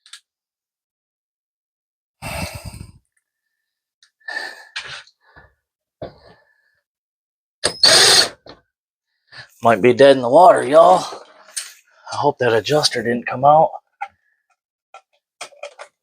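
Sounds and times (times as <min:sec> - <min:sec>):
man sighing and exhaling: 0:02.2 - 0:03.1.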